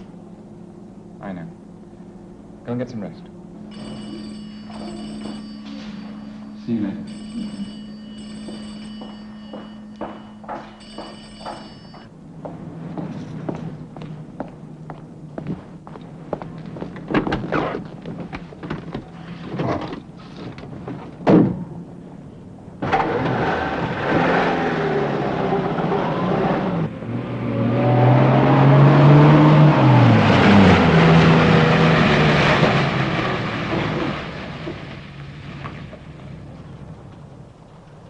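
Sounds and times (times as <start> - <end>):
car engine starting and revving: 22.8 - 36.3.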